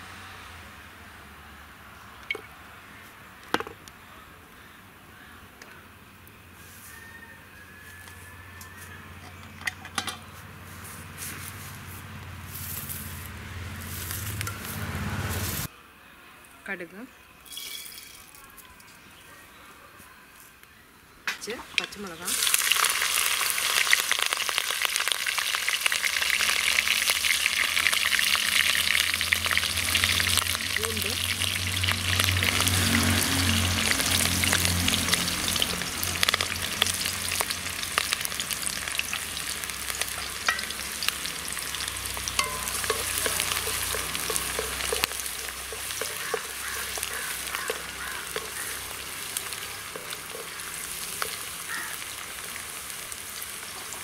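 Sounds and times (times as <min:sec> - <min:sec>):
spices sizzling in hot oil: 0:21.4 - 0:54.0
wooden spatula stirring pan: 0:40.0 - 0:52.0.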